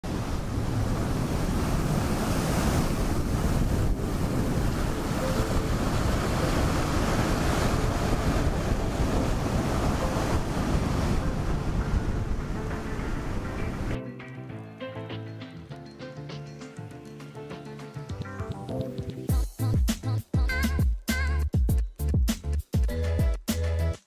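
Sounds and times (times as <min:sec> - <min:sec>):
ocean surf washing in: 0:00.0 - 0:14.0
wind buffeting microphone: 0:00.0 - 0:14.0.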